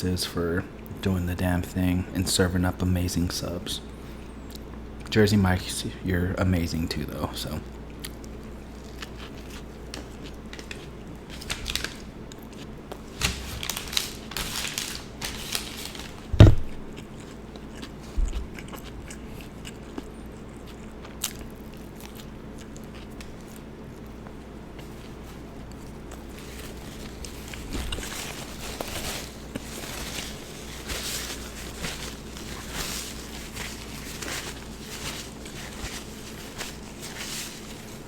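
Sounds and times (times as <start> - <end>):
crunchy chewing: 7.6 - 38.0
thump: 16.4 - 16.7.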